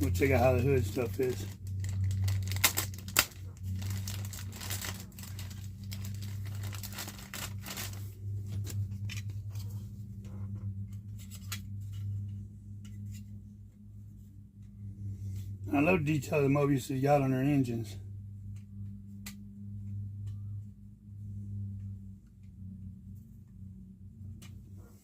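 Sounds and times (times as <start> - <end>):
steady low hum: 0.0 - 25.0
plastic bag crinkling and tearing: 0.1 - 8.2
small clicks and rustles: 1.4 - 13.4.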